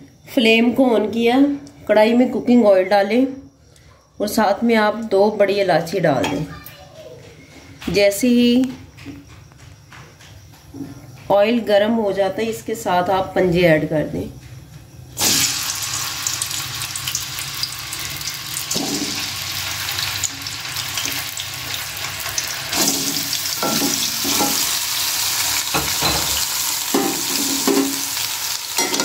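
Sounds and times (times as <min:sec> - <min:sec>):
frying in hot oil: 0:15.2 - 0:29.0
spoon scraping a pan: 0:25.7 - 0:29.0.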